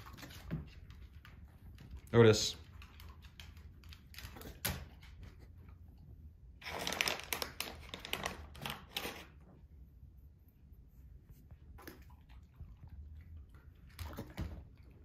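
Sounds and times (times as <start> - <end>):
plastic bag crinkling: 6.6 - 9.3.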